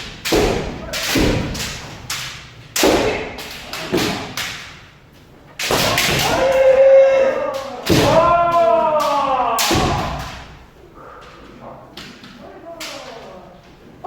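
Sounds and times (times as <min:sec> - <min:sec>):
bamboo swords striking armour: 0:00.0 - 0:04.8, 0:05.6 - 0:06.7, 0:07.6 - 0:10.7
long held shout: 0:06.2 - 0:10.4.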